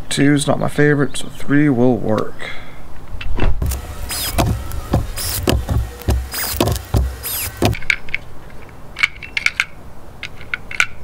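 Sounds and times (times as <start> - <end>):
cordless drill driving screws: 3.6 - 7.8.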